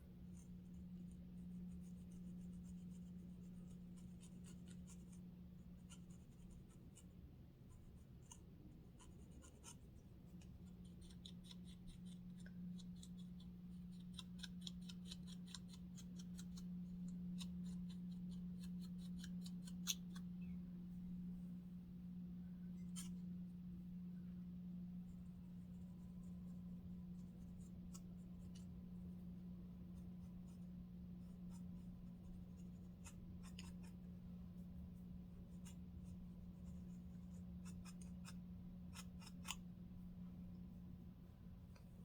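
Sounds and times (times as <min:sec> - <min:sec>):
steady low hum: 0:00.0 - 0:42.0
comb scratching scalp: 0:00.3 - 0:05.2, 0:07.7 - 0:20.3, 0:29.8 - 0:39.6.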